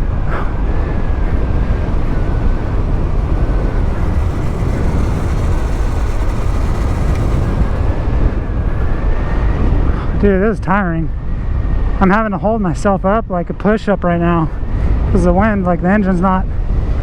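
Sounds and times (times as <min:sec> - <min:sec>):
faint high whine: 0:00.0 - 0:08.6
wind buffeting microphone: 0:00.0 - 0:08.8
motorcycle tyre noise: 0:00.0 - 0:09.0.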